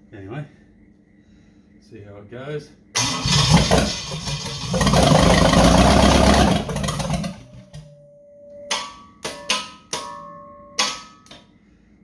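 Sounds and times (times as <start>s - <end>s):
engine bursts: 3.0s - 7.8s
engine cranking on starter: 3.0s - 7.8s.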